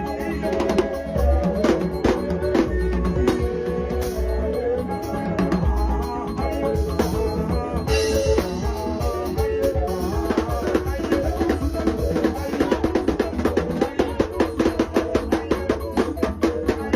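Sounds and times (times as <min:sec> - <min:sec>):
held pitched notes: 0:00.0 - 0:16.9
drum kit strikes: 0:07.1 - 0:15.9.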